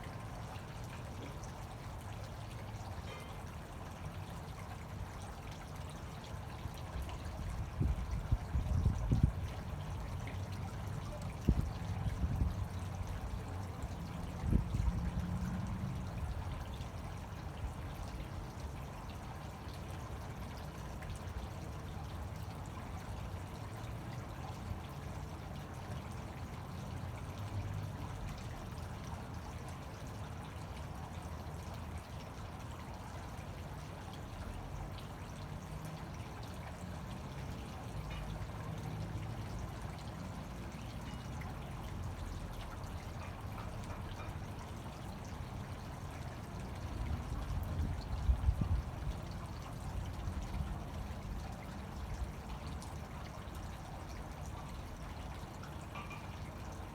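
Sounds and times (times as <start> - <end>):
fountain water splashing: 0.0 - 56.9.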